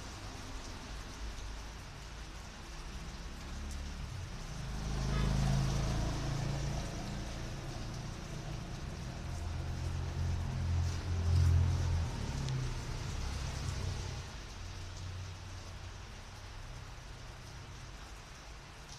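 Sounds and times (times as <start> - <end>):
rain hiss: 0.0 - 18.9
vehicle engine rumbling past: 3.1 - 15.5.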